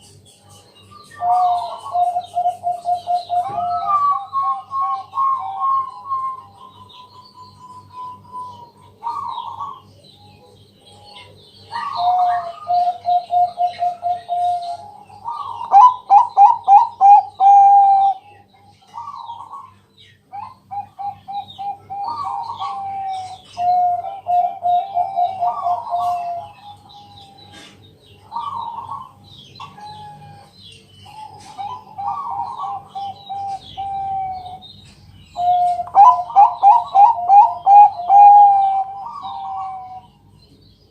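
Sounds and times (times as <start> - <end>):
dove cooing: 1.2 - 34.7, 35.3 - 40.2.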